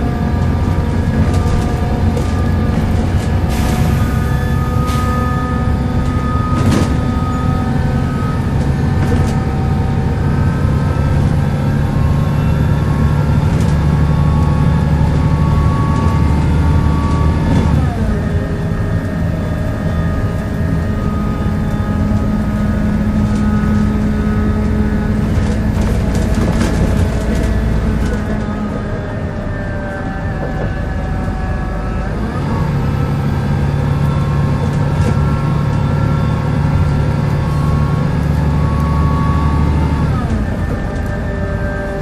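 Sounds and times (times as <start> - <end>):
bus engine groaning: 0.0 - 42.0.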